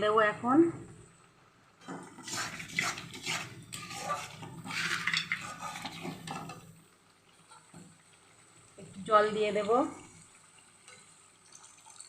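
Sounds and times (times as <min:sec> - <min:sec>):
spoon scraping in a pan: 0:01.8 - 0:06.8.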